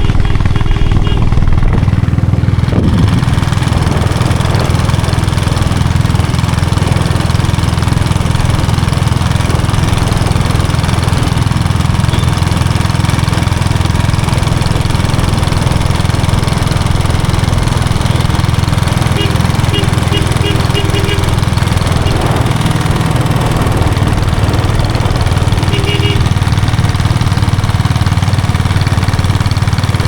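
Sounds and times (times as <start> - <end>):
diesel motorcycle engine running: 0.0 - 30.0.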